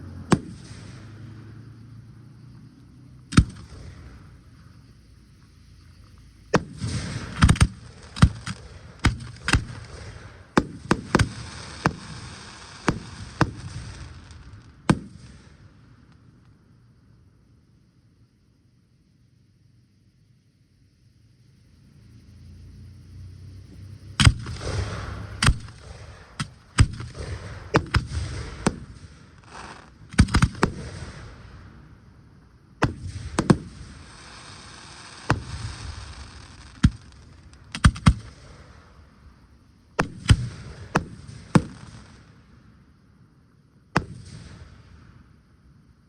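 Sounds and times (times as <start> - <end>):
fireworks bangs: 0.2 - 1.6, 3.3 - 4.7, 6.5 - 16.3, 24.2 - 42.6, 44.0 - 45.3
fireworks hissing and crackling: 0.3 - 1.6, 3.3 - 16.6, 24.0 - 42.9, 44.0 - 45.5.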